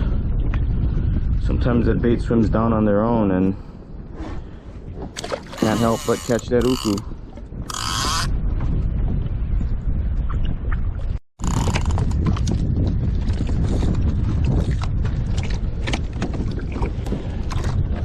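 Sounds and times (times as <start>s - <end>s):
wind rumbling on microphone: 0.0s - 18.0s
water slapping kayak hull: 4.1s - 8.7s, 10.2s - 18.0s.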